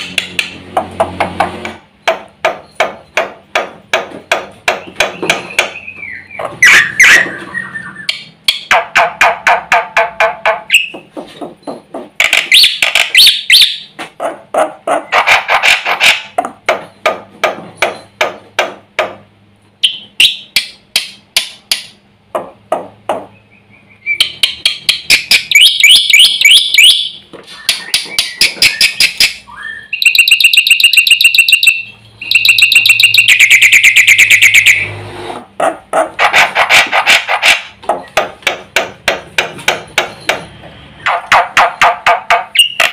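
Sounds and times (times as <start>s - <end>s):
bird singing rapid sharp notes: 4.6s - 8.7s, 23.3s - 35.0s, 42.5s - 42.9s.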